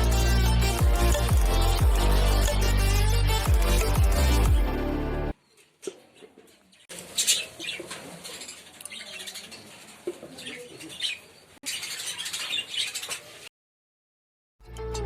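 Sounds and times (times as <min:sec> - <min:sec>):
caged birds chirping: 0:05.4 - 0:13.5.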